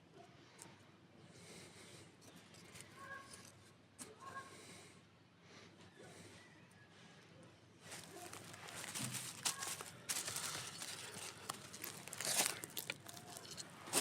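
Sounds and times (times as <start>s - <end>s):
kindling crackling and snapping: 7.9s - 14.0s.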